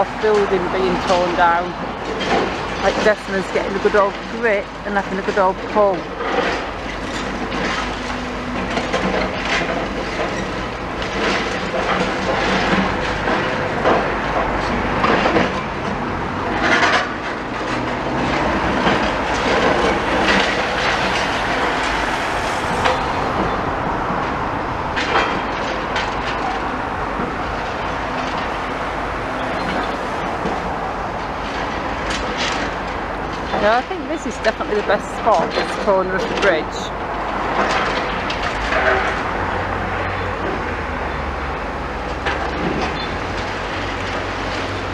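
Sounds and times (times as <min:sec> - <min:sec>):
diesel engine hum: 0:00.0 - 0:44.9
metal creaking and crunching: 0:06.2 - 0:33.6.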